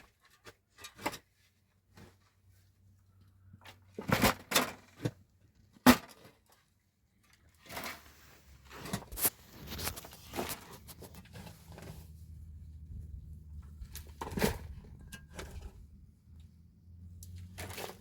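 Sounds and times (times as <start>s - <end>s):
objects knocking and clattering: 3.6s - 6.5s, 13.6s - 16.0s
scraping and rustling: 7.6s - 16.0s.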